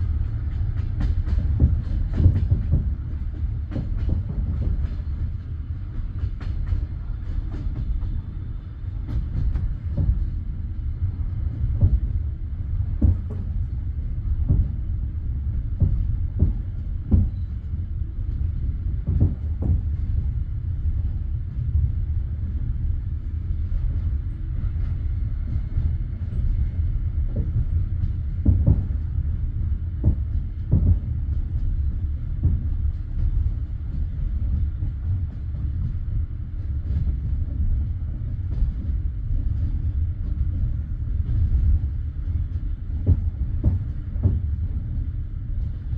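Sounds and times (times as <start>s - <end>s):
low train rumble: 0.0s - 45.9s
train wheels clicking over joints: 0.0s - 45.9s.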